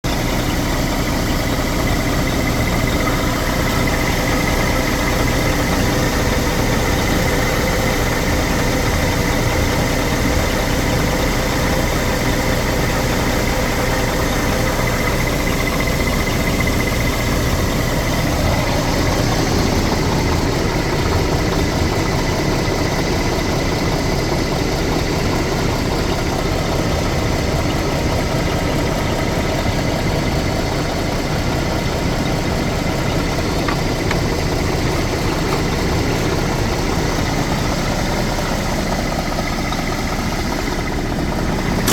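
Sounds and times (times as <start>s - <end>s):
diesel truck engine idling: 0.0s - 41.9s.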